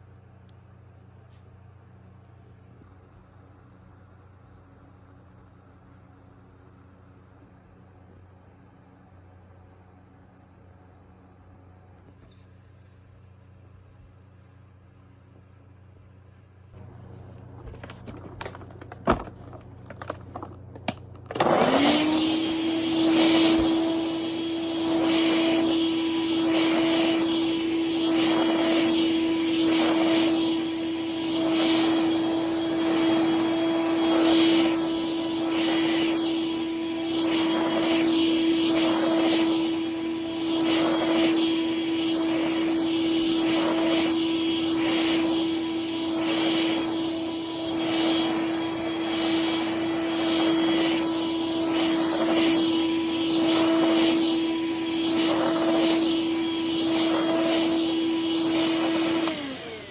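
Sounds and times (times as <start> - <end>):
vacuum cleaner motor whine: 16.8 - 59.9.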